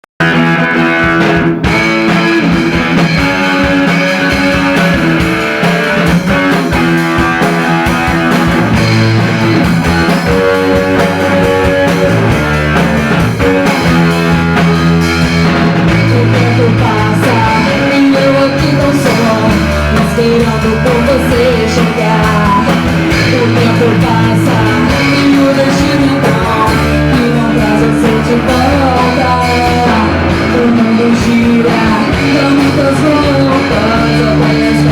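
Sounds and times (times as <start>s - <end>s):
rock band playing: 0.2s - 34.9s
person singing: 15.8s - 34.9s.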